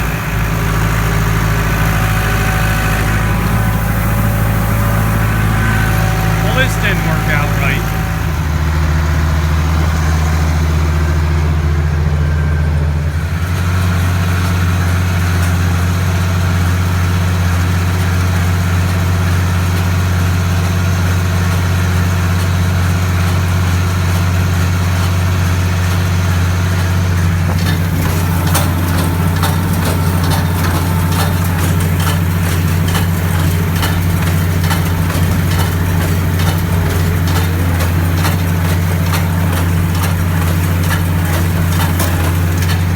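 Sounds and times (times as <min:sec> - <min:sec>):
tractor engine running: 0:00.0 - 0:42.9
ticking clatter: 0:21.4 - 0:42.9.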